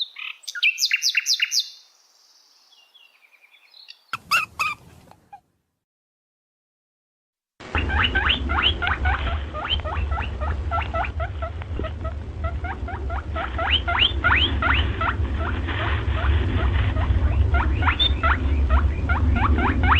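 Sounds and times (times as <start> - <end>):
small birds chirping: 0.0 - 5.4, 7.8 - 19.9
steady low rumble: 7.6 - 19.9.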